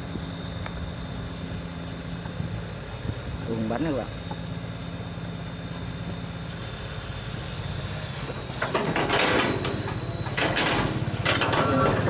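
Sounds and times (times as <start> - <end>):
vehicle engine droning: 4.3 - 12.0
hissing scraping bursts: 6.5 - 9.1.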